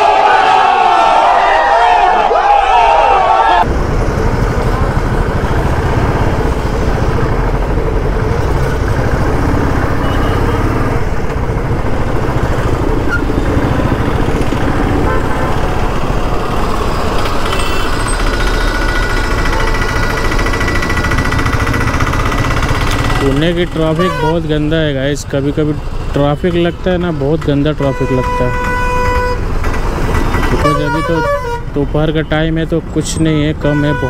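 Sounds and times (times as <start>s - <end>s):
surrounding traffic noise: 0.0s - 34.0s
motorcycle engine running: 3.6s - 26.4s.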